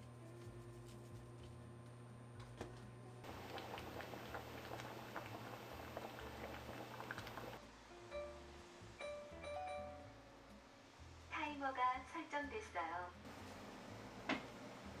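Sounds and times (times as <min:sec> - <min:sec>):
liquid boiling in a pot: 0:02.4 - 0:07.7, 0:13.3 - 0:15.0.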